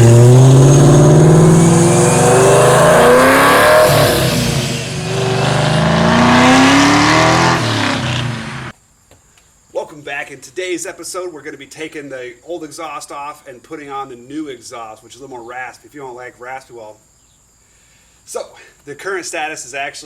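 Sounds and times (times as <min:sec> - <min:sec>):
car exhaust under hard acceleration: 0:00.0 - 0:08.7.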